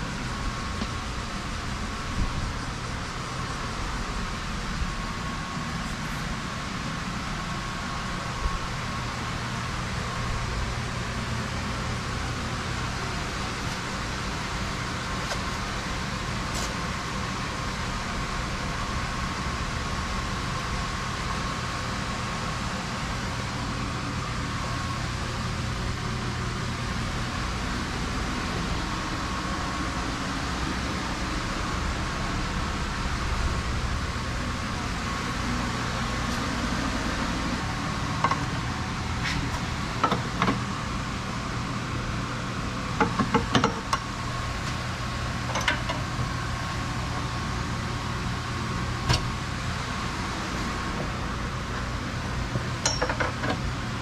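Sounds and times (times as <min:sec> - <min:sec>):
steady mechanical hum: 0:00.0 - 0:54.0.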